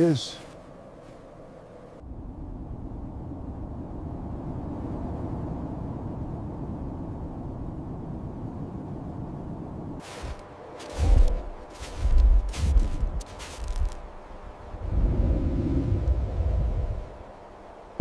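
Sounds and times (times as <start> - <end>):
low wind rumble: 0.0 - 18.0.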